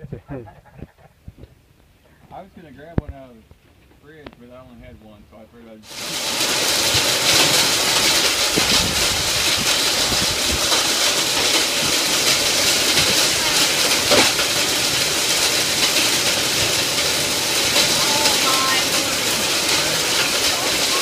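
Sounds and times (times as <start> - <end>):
heavy rain with wind: 5.8 - 21.0.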